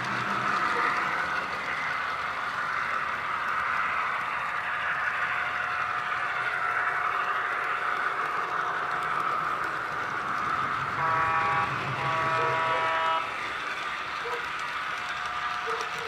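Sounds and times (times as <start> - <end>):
locomotive running sound: 0.0 - 16.0
locomotive horn blasts: 11.0 - 13.3.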